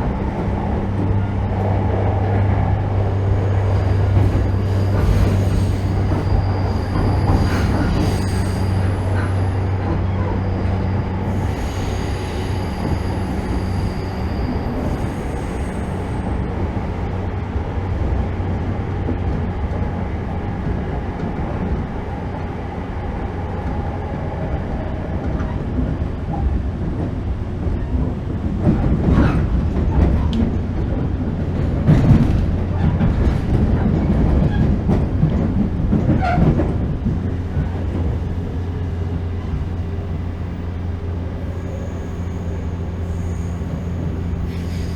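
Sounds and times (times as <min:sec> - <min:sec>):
train motors and wheels rumbling: 0:00.0 - 0:44.9
high wheel squeal: 0:03.3 - 0:16.6.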